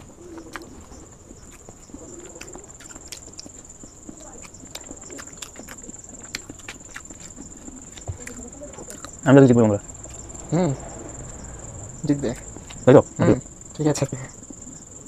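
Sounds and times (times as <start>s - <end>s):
chewing and mouth smacks: 0.0s - 9.2s
high-pitched whine: 8.4s - 14.3s.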